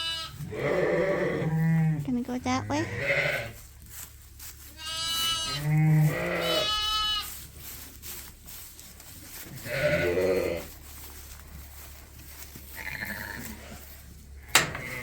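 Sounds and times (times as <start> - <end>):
sheep bleating: 0.0 - 2.0, 2.6 - 3.6, 4.8 - 7.3, 9.6 - 10.7, 12.7 - 13.8.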